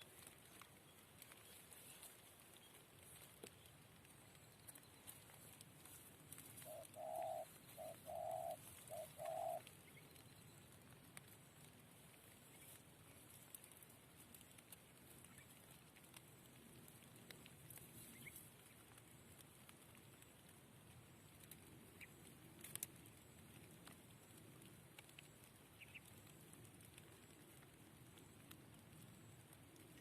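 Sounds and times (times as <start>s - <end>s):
dove cooing: 6.6s - 9.7s.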